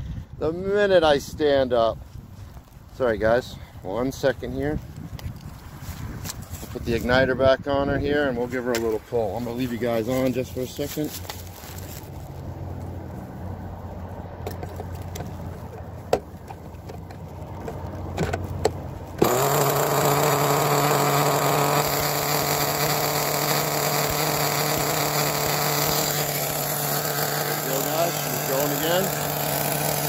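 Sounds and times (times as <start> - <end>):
small engine running: 19.2 - 30.0.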